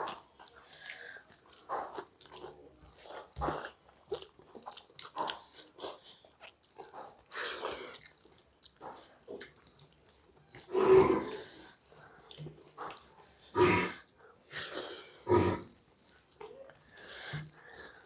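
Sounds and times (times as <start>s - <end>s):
chewing and lip-smacking: 0.0s - 10.7s, 11.7s - 13.4s, 15.9s - 18.0s.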